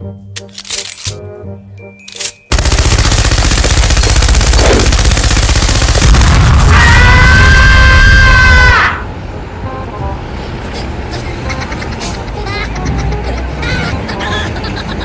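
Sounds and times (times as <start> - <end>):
jingly music: 0.0 - 2.6
loud fast rattling: 2.5 - 6.3.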